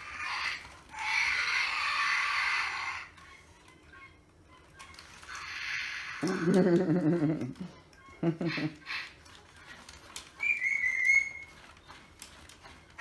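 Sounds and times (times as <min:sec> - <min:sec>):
parrot squawking: 0:00.0 - 0:03.4, 0:08.2 - 0:09.2, 0:10.4 - 0:11.6.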